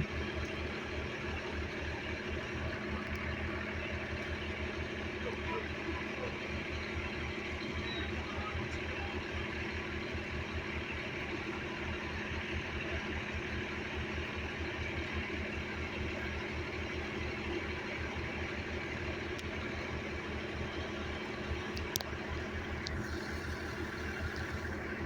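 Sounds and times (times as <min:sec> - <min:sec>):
vehicle engine idling: 0:00.0 - 0:25.0.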